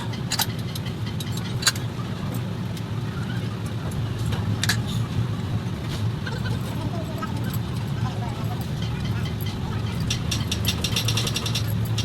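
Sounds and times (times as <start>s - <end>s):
sharp metallic clicks: 9.2s - 12.0s.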